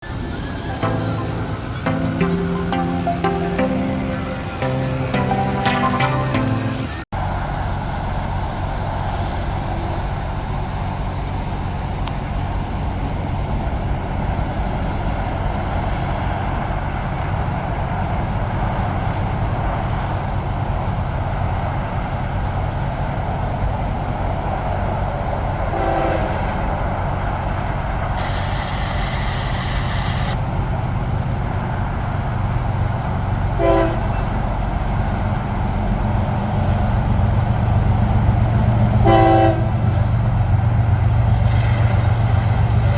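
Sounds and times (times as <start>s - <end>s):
high hiss: 0.0s - 6.9s, 28.2s - 30.4s
diesel locomotive rumbling: 0.0s - 42.9s
train horn toots: 25.7s - 26.6s, 33.6s - 34.4s, 39.0s - 39.9s.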